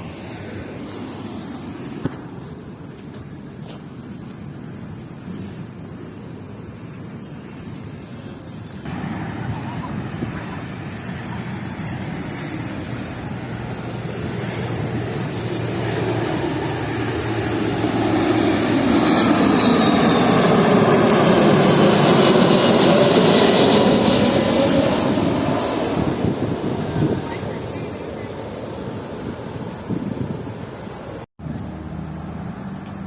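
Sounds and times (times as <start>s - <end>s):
jet airliner engine roar: 0.0s - 33.0s
high engine whine sliding down: 8.8s - 27.3s.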